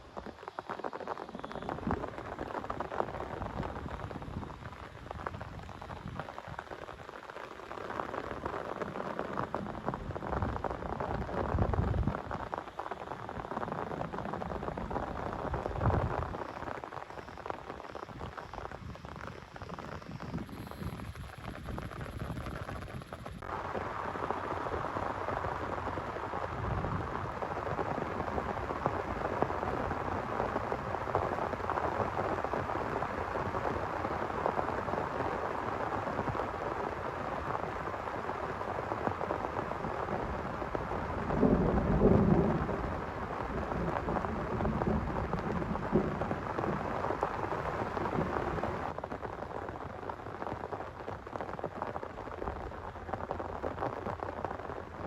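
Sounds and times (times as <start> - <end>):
heavy rain falling: 0.0 - 55.0
thunder rumbling: 37.4 - 49.3.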